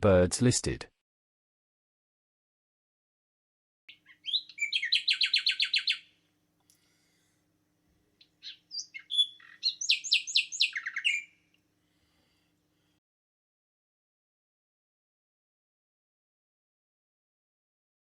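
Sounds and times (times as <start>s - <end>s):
songbird singing: 3.9s - 6.2s, 8.2s - 11.5s.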